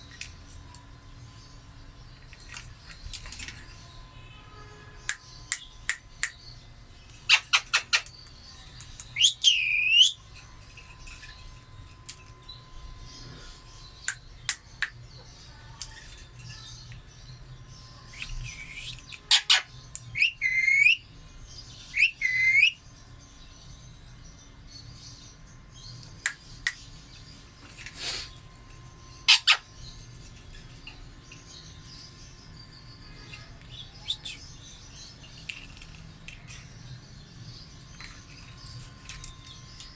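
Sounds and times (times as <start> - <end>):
parrot chirping and screeching: 7.2 - 8.2, 9.2 - 10.2, 18.2 - 21.0, 21.9 - 22.8, 29.2 - 29.7.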